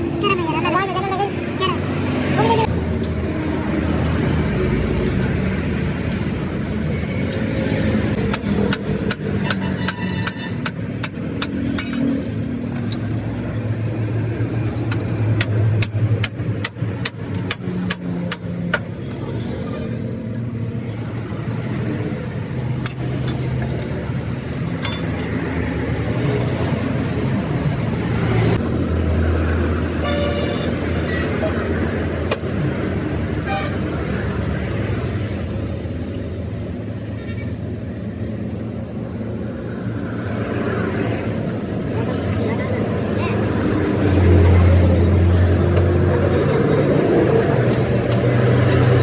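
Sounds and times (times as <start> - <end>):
engine humming: 0.0 - 9.4.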